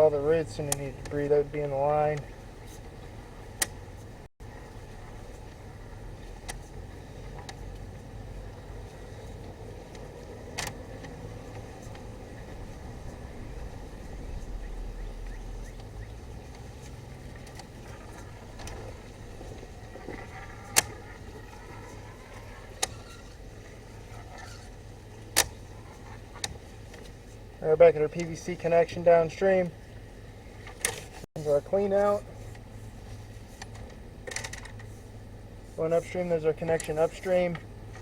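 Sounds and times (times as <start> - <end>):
low mechanical rumble: 0.0 - 38.0.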